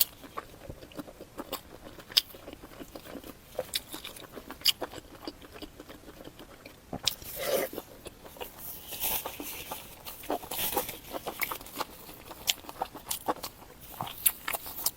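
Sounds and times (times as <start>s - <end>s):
chewing with wet clicks: 0.0s - 14.9s
slurp: 7.0s - 7.9s.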